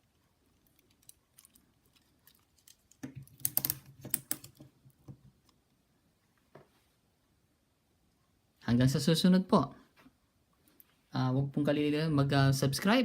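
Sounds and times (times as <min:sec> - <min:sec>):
toy figure clicks and rattles: 0:02.7 - 0:04.6.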